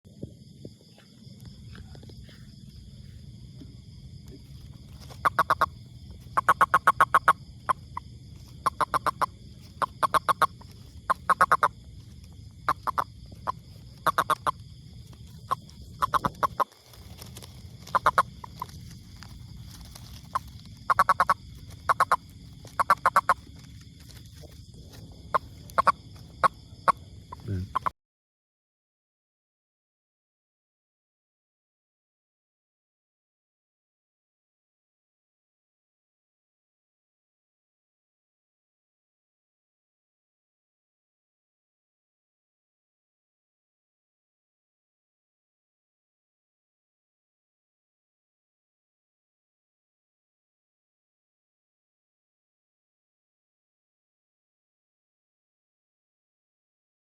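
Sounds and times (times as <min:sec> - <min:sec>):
toad calling rattling pulses: 0:00.9 - 0:27.9.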